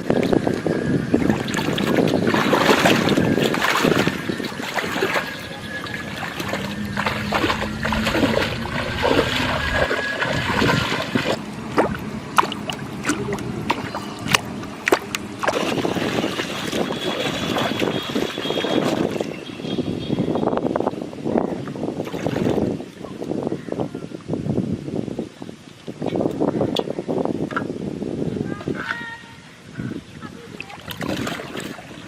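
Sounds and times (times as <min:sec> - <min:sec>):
water splashing and trickling: 0:00.0 - 0:20.1, 0:21.4 - 0:23.5, 0:30.3 - 0:32.0
low steady hum: 0:00.0 - 0:20.4.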